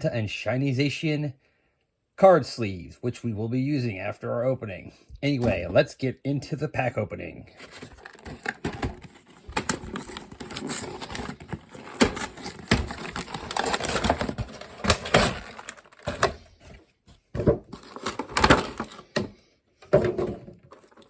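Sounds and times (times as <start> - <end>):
packaging rustling: 7.6 - 16.8, 17.4 - 19.3, 20.7 - 21.0.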